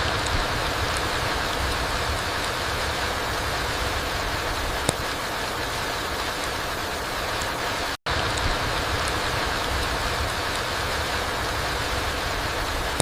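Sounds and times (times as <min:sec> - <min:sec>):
rain falling on forest floor: 0:00.0 - 0:13.0
sharp tick: 0:04.8 - 0:05.1.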